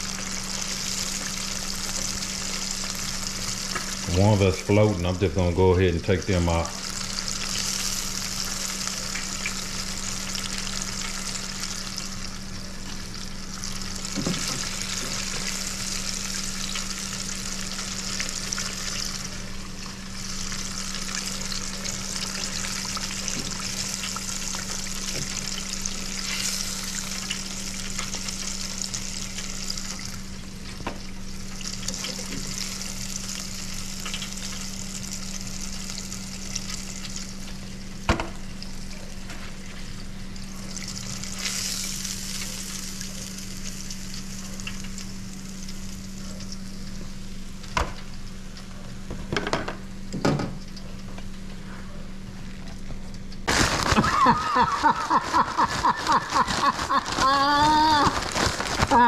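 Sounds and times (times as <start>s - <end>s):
fish deep-frying in oil: 0.0s - 51.5s, 52.1s - 59.0s.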